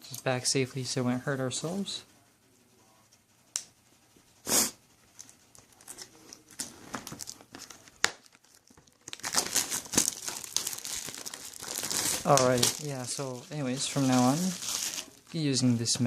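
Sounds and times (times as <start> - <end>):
packaging clicks and rustles: 5.2 - 15.3
packaging crinkling: 5.2 - 15.4.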